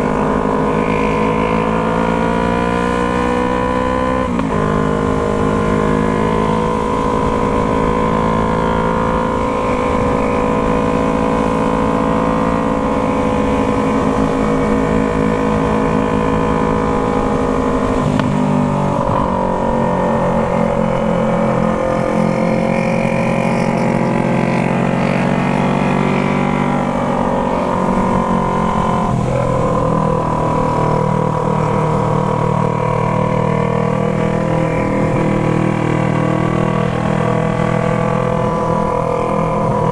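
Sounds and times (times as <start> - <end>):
motorcycle engine running while riding: 0.0 - 39.9.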